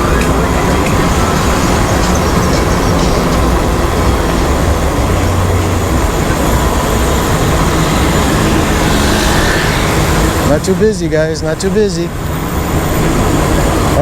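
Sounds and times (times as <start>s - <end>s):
road noise rumble: 0.0s - 14.0s
wind rushing over microphone: 0.0s - 14.0s.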